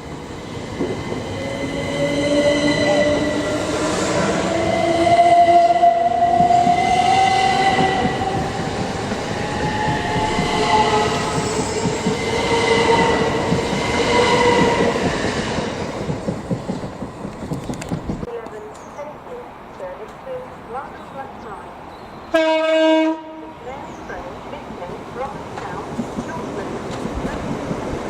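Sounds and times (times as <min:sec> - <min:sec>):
train whining tones: 0:00.0 - 0:18.2
train rumbling on track: 0:00.0 - 0:22.4, 0:23.2 - 0:28.0.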